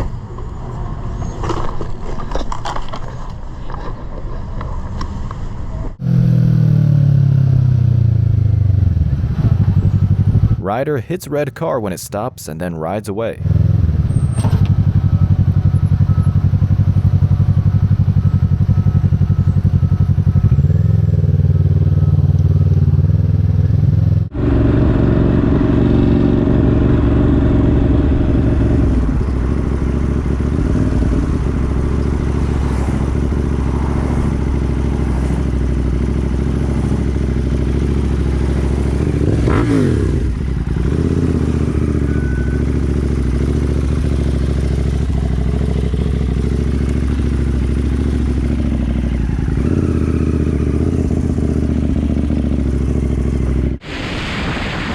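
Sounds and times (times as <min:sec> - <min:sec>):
road and wind noise: 0:00.0 - 0:10.7, 0:13.2 - 0:54.9
motorcycle engine running: 0:06.0 - 0:10.6, 0:13.4 - 0:53.8
passing vehicle: 0:13.4 - 0:53.8.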